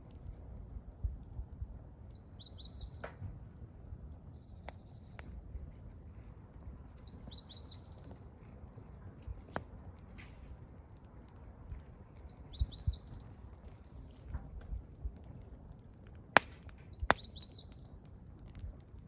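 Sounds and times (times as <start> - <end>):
campfire rustling and popping: 0.0 - 19.0
songbird chirping and whistling: 2.0 - 3.4, 6.9 - 8.5, 12.1 - 13.7, 16.8 - 18.2.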